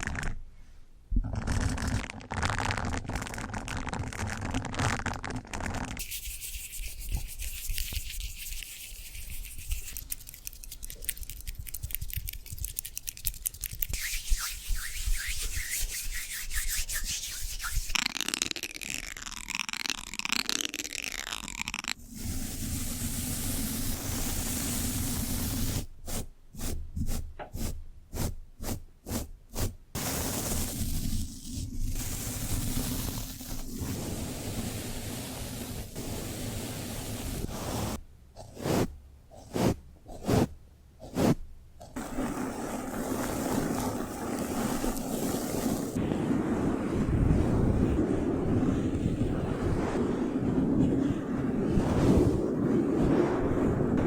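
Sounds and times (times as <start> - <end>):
rubbing and scratching: 1.2 - 22.2, 37.2 - 46.0.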